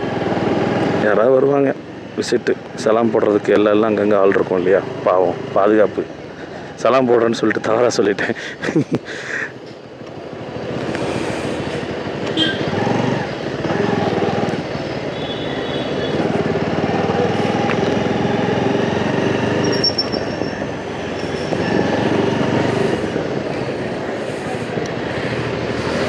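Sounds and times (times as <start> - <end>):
motorcycle engine: 0.0 - 2.2, 9.8 - 26.0
other vehicles' engines: 0.0 - 26.0.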